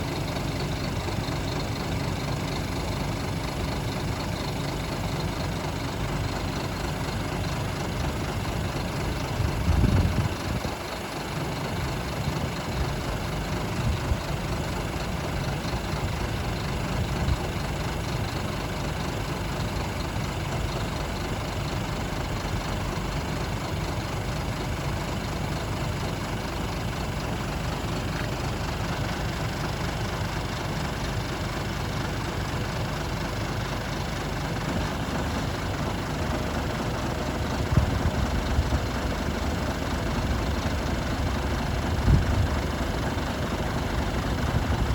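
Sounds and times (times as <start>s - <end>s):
truck diesel engine idling: 0.0s - 44.9s.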